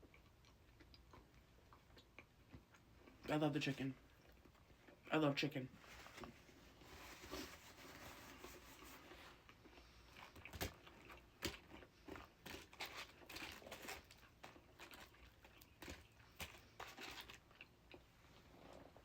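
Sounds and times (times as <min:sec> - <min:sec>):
chewing: 0:00.0 - 0:03.3, 0:04.0 - 0:05.1, 0:08.3 - 0:19.0
sharp clicks and crunches: 0:12.4 - 0:17.7.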